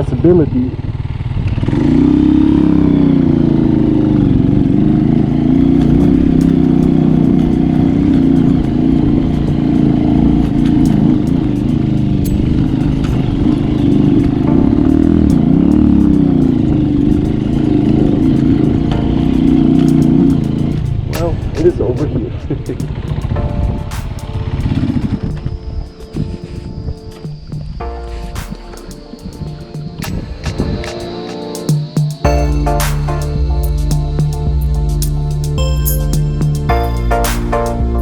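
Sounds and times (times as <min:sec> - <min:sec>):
motorcycle engine running: 0:00.0 - 0:21.3.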